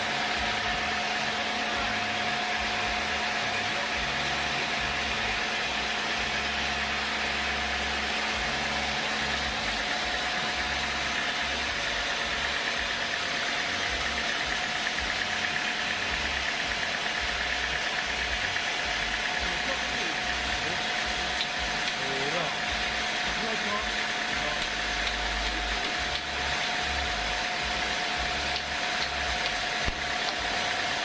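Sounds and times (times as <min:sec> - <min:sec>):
sawmill machinery droning: 0:00.0 - 0:31.0.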